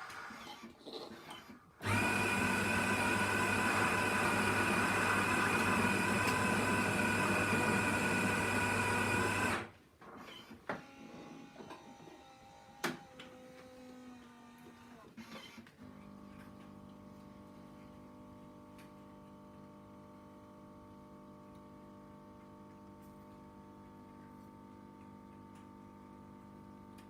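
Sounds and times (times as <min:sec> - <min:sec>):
espresso machine humming: 0:01.8 - 0:09.7, 0:16.1 - 0:27.0.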